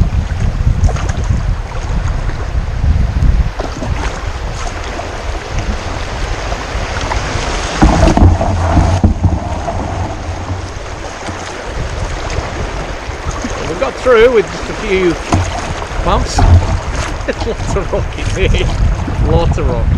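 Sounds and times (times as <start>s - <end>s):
water rushing over rocks: 0.0s - 19.7s
kayak hull bumping over rocks: 3.5s - 19.2s.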